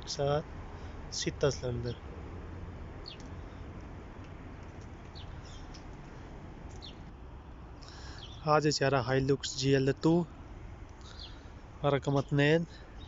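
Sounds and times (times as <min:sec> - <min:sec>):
low hum and hiss: 0:00.0 - 0:13.0
high bird chirps: 0:03.0 - 0:03.6, 0:04.6 - 0:05.8, 0:06.7 - 0:07.1, 0:07.8 - 0:08.5, 0:11.0 - 0:11.6.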